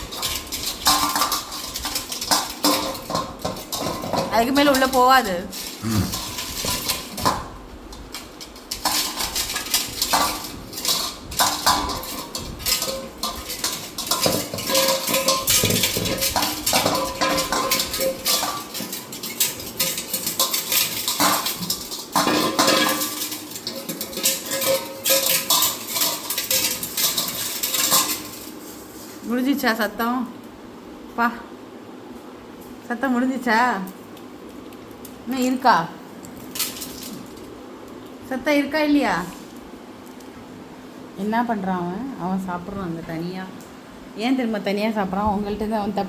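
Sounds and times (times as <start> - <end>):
metal bowl clanking and scraping: 0.0 - 29.4, 36.2 - 37.6.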